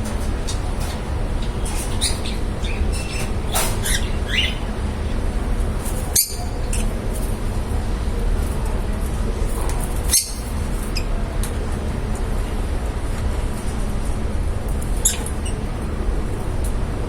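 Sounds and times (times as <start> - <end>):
lovebirds chirping and squawking: 0.0 - 7.0, 10.0 - 11.1, 15.0 - 15.8
steady low hum: 0.0 - 17.0.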